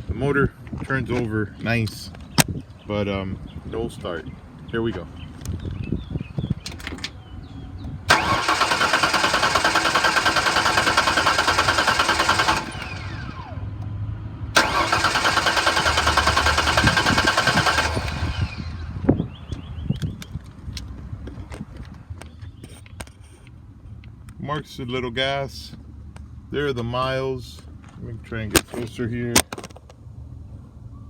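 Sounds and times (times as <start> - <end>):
starter falling whine: 8.1 - 13.5, 14.6 - 19.1
engine cranking on starter: 8.1 - 13.6, 14.6 - 19.0.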